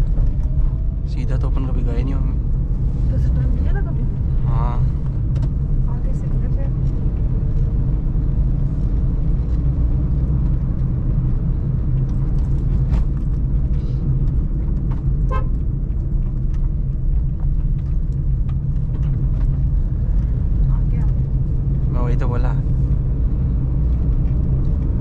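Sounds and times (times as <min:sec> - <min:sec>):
car engine rumbling: 0:00.0 - 0:25.0
road noise: 0:00.0 - 0:25.0
car horn toot: 0:15.2 - 0:15.6.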